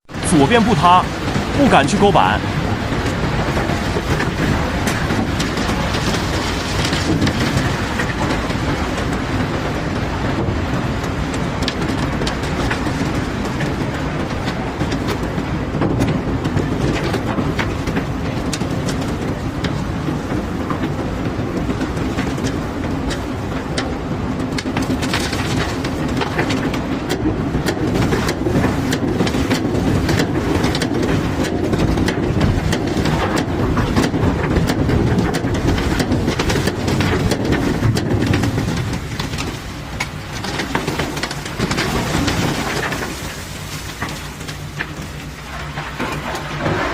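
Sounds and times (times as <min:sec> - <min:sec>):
cobblestones clattering and knocking: 0:15.8 - 0:46.9.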